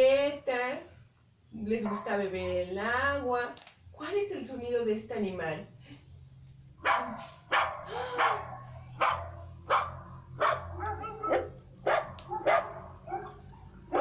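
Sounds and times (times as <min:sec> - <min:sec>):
dog barking: 0:01.8 - 0:02.7, 0:06.8 - 0:14.0.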